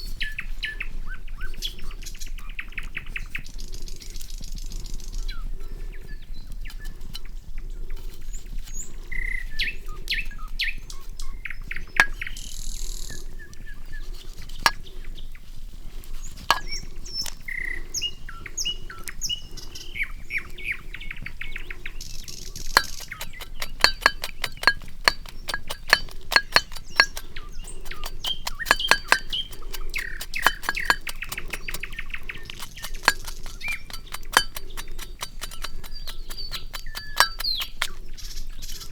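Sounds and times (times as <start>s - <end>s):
birds chirping: 0.2s - 38.9s
campfire crackling: 22.6s - 38.0s.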